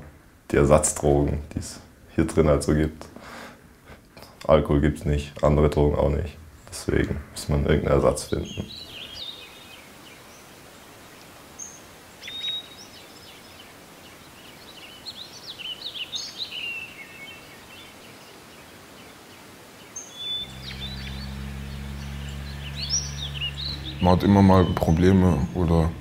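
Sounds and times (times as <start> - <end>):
low steady hum: 0.0 - 15.4, 19.2 - 26.0
outdoor background noise: 0.0 - 26.0
birds chirping and singing: 7.7 - 26.0.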